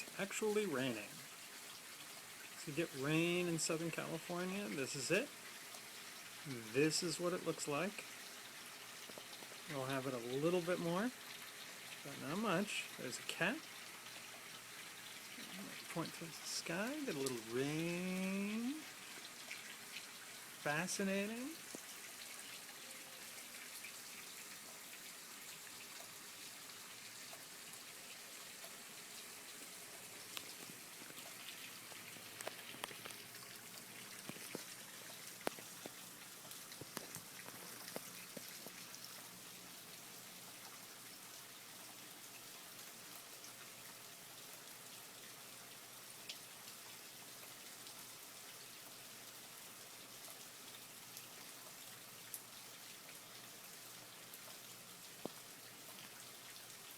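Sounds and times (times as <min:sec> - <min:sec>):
light rain patter: 0:00.0 - 0:56.9
sharp water drips: 0:00.0 - 0:56.9.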